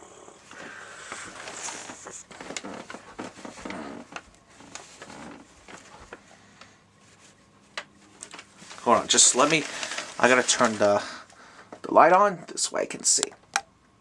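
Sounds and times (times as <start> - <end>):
rustling and shuffling: 0.4 - 12.2.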